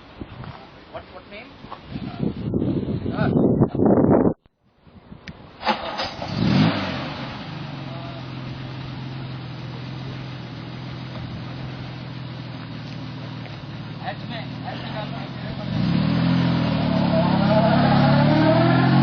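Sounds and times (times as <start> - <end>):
car engine revving and idling: 5.8 - 19.0.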